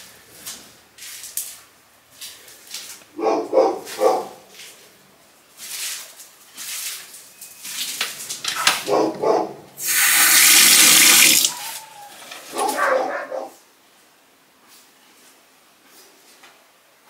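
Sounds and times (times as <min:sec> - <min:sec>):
water pouring: 0:09.8 - 0:11.6.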